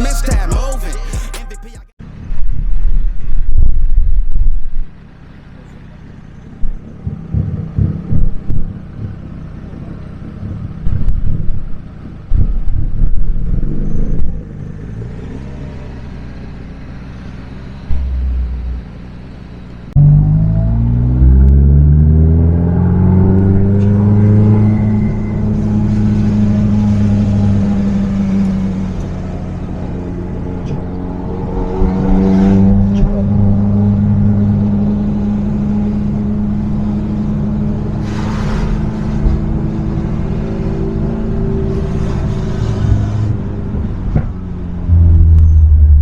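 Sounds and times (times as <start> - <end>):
car engine accelerating: 5.0 - 42.2, 42.9 - 46.0
engine exhaust pops: 6.6 - 13.3.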